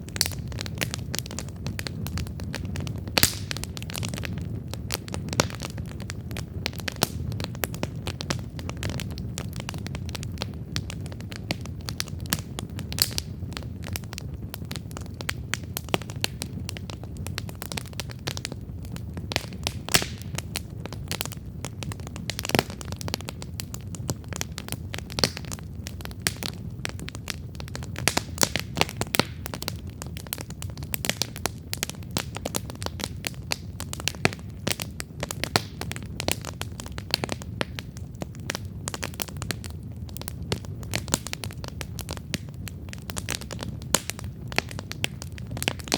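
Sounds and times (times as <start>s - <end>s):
burning wood crackling and popping: 0.0s - 45.9s
campfire flames rumbling: 0.0s - 45.9s.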